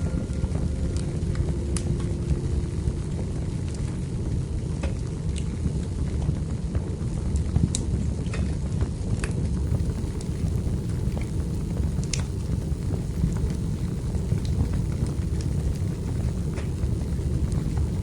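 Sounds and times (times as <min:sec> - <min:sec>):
fire flames rumbling: 0:00.0 - 0:18.0
logs crackling and popping: 0:09.6 - 0:18.0.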